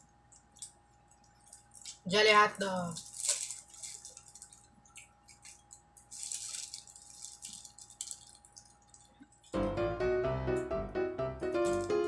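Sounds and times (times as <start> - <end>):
rustling and clicks of eating: 0.0 - 2.1, 2.8 - 9.6
faint steady hum: 0.0 - 12.0
music: 9.5 - 12.0.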